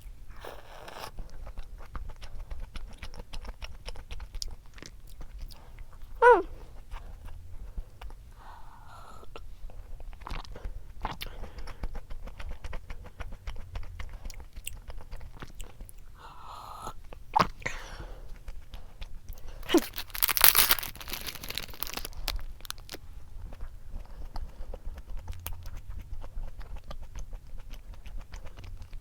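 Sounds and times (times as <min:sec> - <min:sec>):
chewing and crunching snack: 0:00.0 - 0:29.0.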